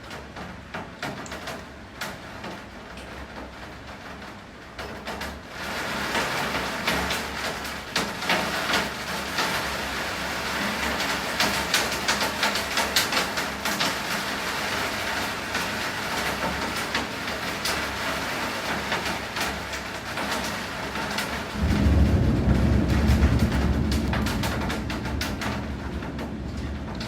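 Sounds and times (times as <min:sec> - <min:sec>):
heavy rain falling: 0:00.0 - 0:27.0
steady low rumble: 0:21.6 - 0:27.0.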